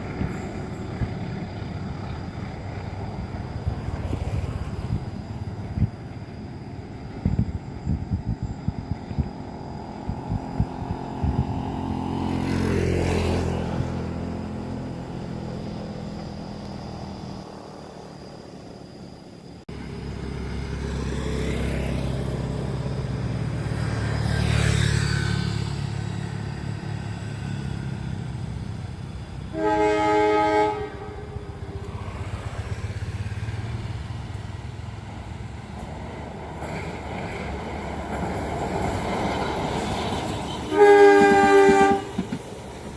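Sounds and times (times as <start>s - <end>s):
diesel train engine rumble: 0.0s - 24.4s, 25.4s - 42.9s
train horn blast: 29.5s - 31.8s, 40.3s - 42.2s.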